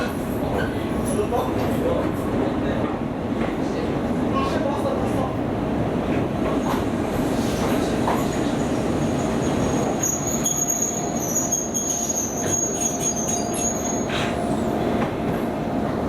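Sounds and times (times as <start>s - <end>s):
electric train slowing to a stop: 6.6s - 16.0s
high-pitched brake squeal: 9.4s - 14.4s.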